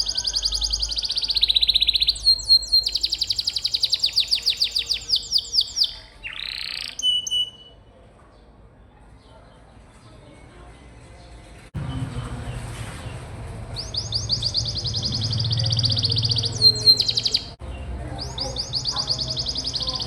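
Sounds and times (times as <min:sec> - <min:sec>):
canary singing trills: 0:00.0 - 0:07.9, 0:13.8 - 0:20.0.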